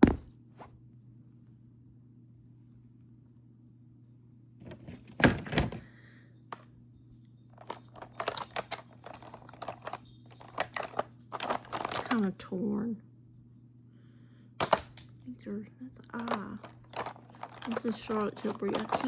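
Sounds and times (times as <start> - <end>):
plastic makeup packaging rattling: 4.6 - 5.8, 7.5 - 12.5, 16.1 - 19.0.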